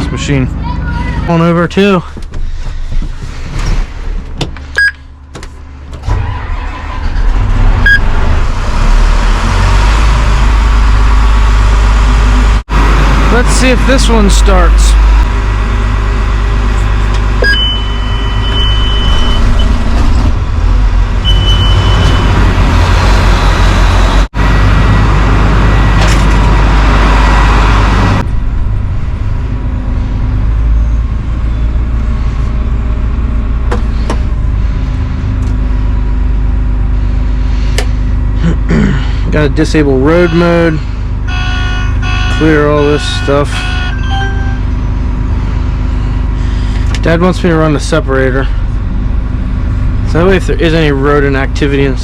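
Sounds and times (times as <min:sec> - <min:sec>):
diesel engine running: 0:00.0 - 0:52.0
high electronic warning beeps: 0:17.4 - 0:19.8, 0:21.2 - 0:22.3, 0:41.4 - 0:44.7.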